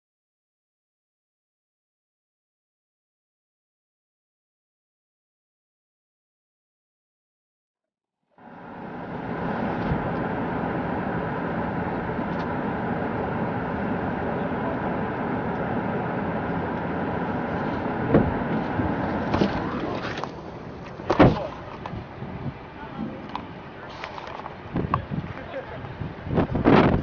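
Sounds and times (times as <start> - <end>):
loud rushing noise: 8.4 - 24.9
short knocks: 18.1 - 18.6.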